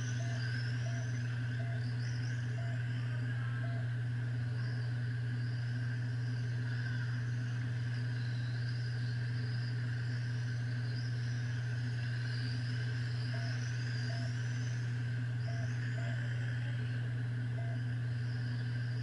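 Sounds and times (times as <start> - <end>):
electric toy truck motors whining: 0.0 - 2.8
loud low hum: 0.0 - 19.0.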